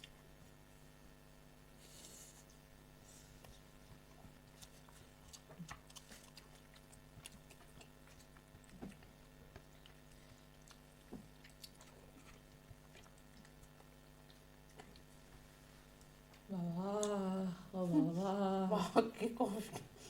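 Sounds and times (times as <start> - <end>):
low steady hum: 0.0 - 20.0
person chewing: 3.4 - 17.1.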